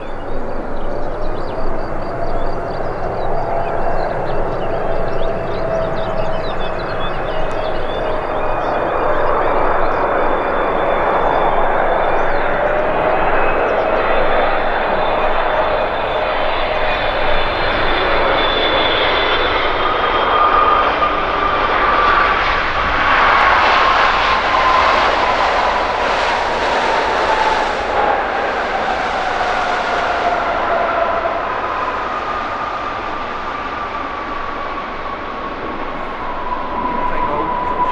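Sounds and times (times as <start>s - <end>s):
jet engine roar with whine: 0.0s - 37.9s.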